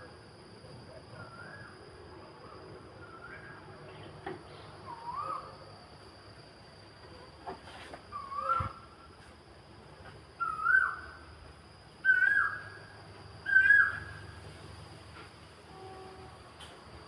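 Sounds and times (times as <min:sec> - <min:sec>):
animal whistled call: 0:04.9 - 0:05.5, 0:08.1 - 0:08.8, 0:10.4 - 0:11.1, 0:12.0 - 0:12.8, 0:13.4 - 0:14.2.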